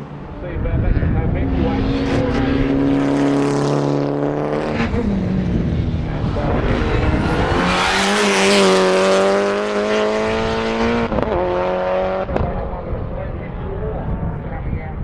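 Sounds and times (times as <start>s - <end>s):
race car engines running hard: 0.0s - 15.0s
car passing with rushing noise: 1.4s - 12.1s.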